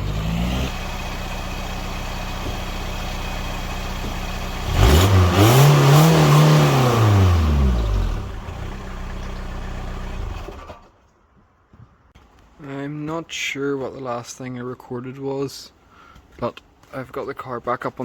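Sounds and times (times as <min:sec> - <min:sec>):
diesel engine idling and revving: 0:00.0 - 0:10.9.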